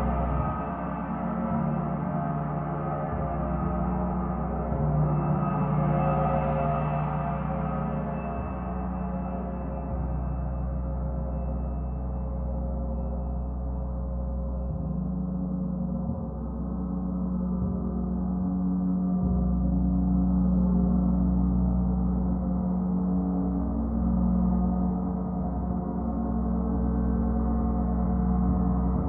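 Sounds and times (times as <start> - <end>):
gong drone: 0.0 - 13.6.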